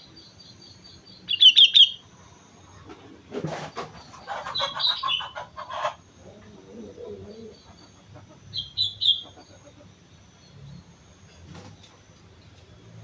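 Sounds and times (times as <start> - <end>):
bird low warbling: 4.0 - 10.0
bird harsh chattering: 4.2 - 6.0.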